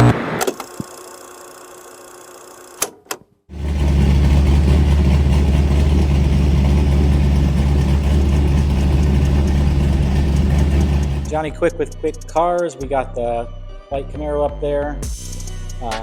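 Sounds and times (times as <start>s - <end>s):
vee eight engine idling: 3.5s - 11.5s.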